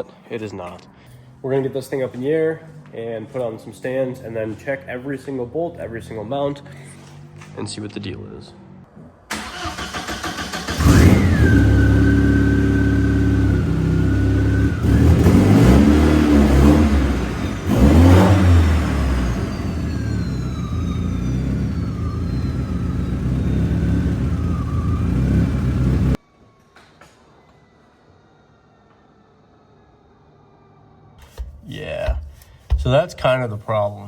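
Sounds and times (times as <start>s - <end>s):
car engine starting and revving: 9.3s - 26.2s.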